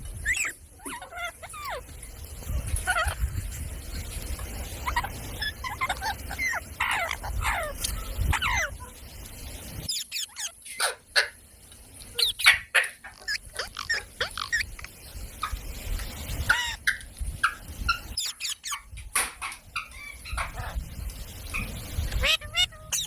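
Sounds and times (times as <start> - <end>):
parrot squawking: 0.2 - 1.9, 2.5 - 3.4, 4.8 - 8.9, 9.8 - 11.4, 12.1 - 15.6, 16.4 - 19.0, 21.5 - 23.0.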